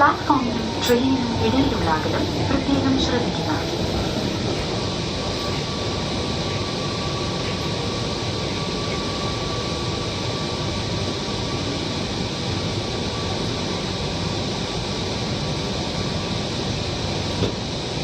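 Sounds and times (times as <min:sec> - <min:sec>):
thin steady whine: 0:00.0 - 0:14.1
train rumble and hiss: 0:00.0 - 0:18.0.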